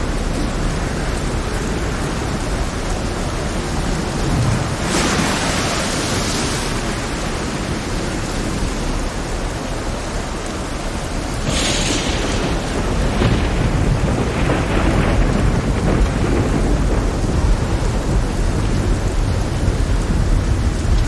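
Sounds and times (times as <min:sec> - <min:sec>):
rush of spray: 0:00.0 - 0:15.6
heavy rain: 0:00.0 - 0:21.0
rough sea water: 0:00.0 - 0:21.0.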